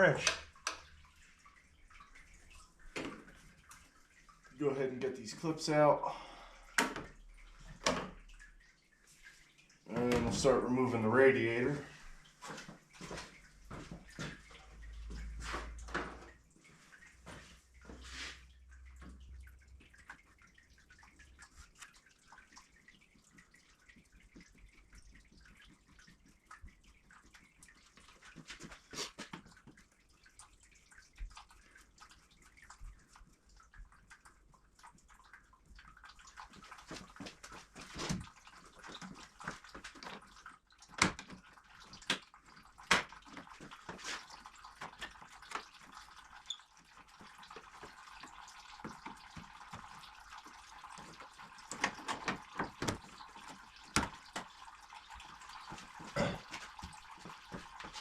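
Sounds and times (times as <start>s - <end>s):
coolant trickling into drain pan: 0.0s - 58.0s
clicks and knocks on radiator: 51.7s - 54.6s.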